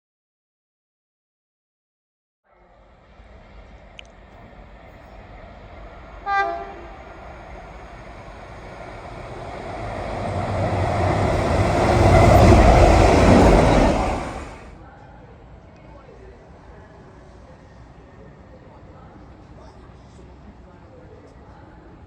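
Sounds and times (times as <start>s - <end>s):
train rumble and wheel noise: 2.6s - 22.0s
train horn blast: 6.2s - 7.2s.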